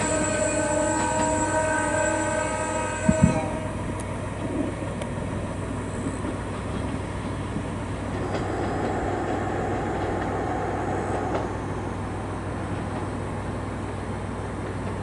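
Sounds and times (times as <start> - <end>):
train horn: 0.0 - 4.4
train rumbling: 0.0 - 15.0.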